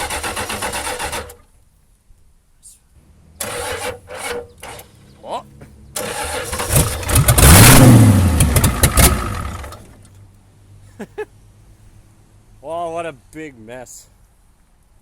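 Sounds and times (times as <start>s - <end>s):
diesel engine starting and revving: 0.0s - 1.5s, 3.3s - 5.1s, 5.9s - 10.1s.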